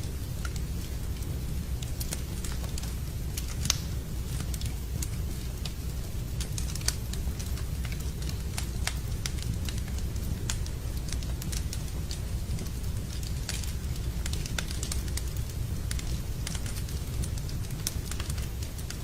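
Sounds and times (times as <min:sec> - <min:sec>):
campfire crackling and popping: 0:00.0 - 0:19.0
steady low rumble: 0:00.0 - 0:19.0.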